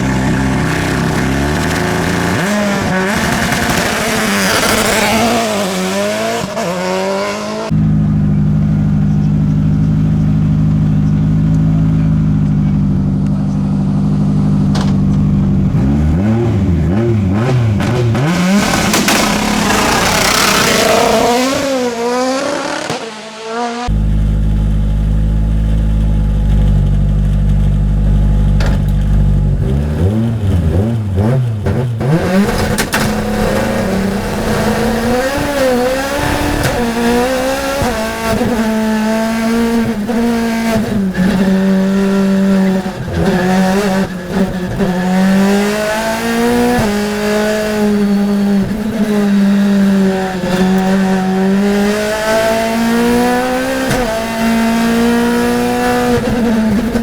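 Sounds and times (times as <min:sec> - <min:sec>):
racing car engine revving: 0:00.0 - 0:57.0.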